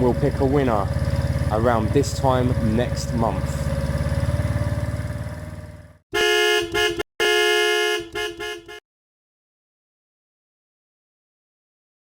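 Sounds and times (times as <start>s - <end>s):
motorcycle engine idling: 0.0s - 6.0s
horn toots and beeps: 6.1s - 8.8s.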